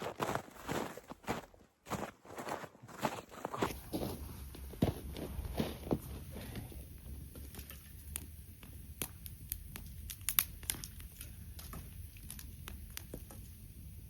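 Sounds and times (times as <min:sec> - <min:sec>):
campfire crackling and popping: 0:03.7 - 0:14.0.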